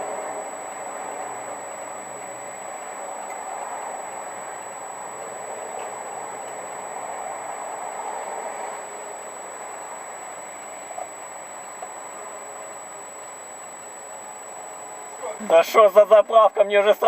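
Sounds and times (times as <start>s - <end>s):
car engine and road hiss: 0.0s - 17.0s
faint ticks: 0.5s - 7.6s, 8.6s - 14.9s.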